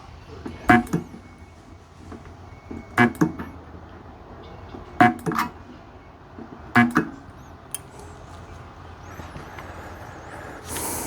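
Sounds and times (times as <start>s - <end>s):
spot welder snapping and buzzing: 0.6s - 1.2s, 2.2s - 3.6s, 5.0s - 5.6s, 6.8s - 7.8s.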